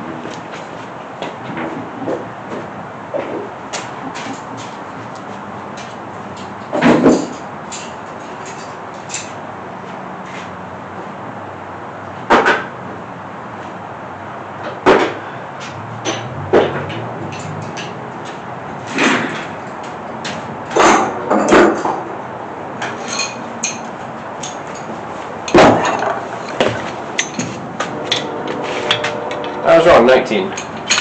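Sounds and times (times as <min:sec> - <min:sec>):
hand tools clanking on metal: 0:15.6 - 0:22.1, 0:22.8 - 0:31.0.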